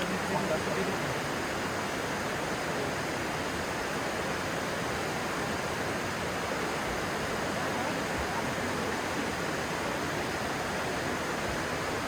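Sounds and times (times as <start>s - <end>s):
stream water rushing: 0.0s - 1.3s.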